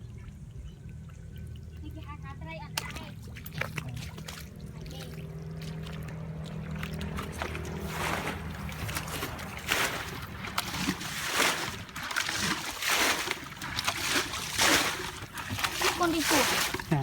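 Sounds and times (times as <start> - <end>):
low engine hum: 0.0 - 17.0
water sloshing and splashing: 0.0 - 17.0.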